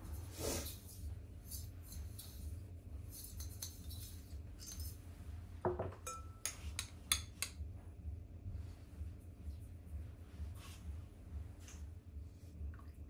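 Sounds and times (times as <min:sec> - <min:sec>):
low steady hum: 0:00.0 - 0:13.0
dishes and utensils clinking: 0:05.7 - 0:07.5.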